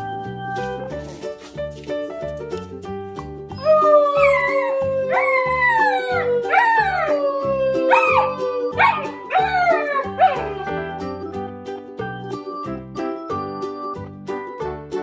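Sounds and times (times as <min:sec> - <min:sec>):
background music with steady beat: 0:00.0 - 0:15.0
dog howling: 0:03.6 - 0:10.8.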